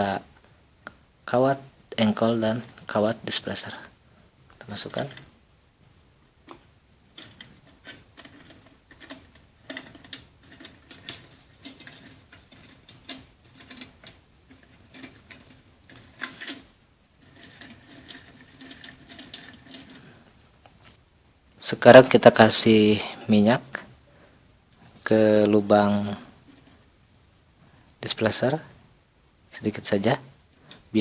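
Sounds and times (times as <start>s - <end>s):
small metal parts clicking: 6.5s - 20.2s.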